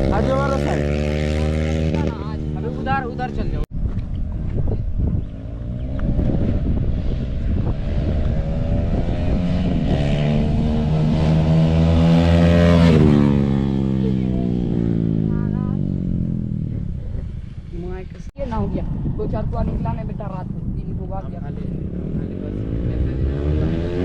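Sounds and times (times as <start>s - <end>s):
motorcycle accelerating past: 0.0s - 3.6s, 5.2s - 17.7s, 21.6s - 24.0s.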